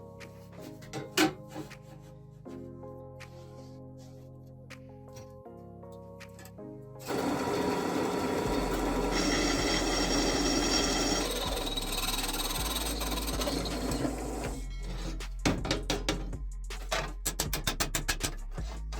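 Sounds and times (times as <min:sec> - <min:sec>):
background music: 0:00.0 - 0:18.9
power tool running: 0:07.0 - 0:14.6.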